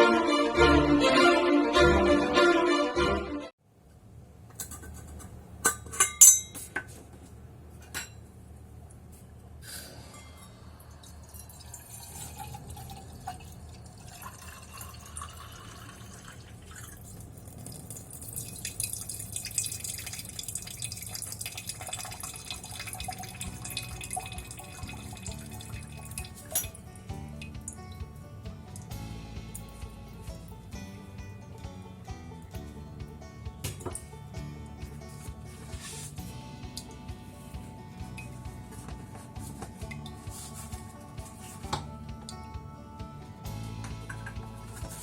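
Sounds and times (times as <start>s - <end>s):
glass clinks: 5.9s - 6.7s
water trickling and dripping: 11.0s - 26.8s.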